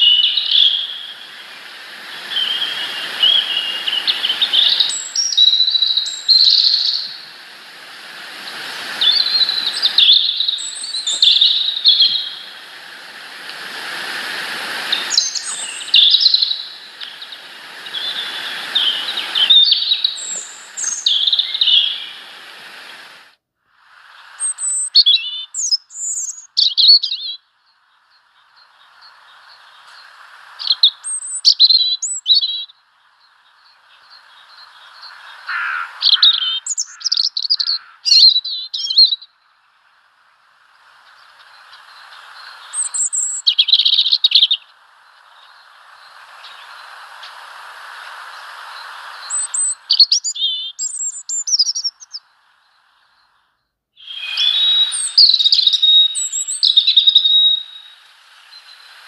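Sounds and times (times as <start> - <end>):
small birds chirping: 0.0 - 23.2, 24.1 - 59.0
steady hiss: 0.0 - 59.0.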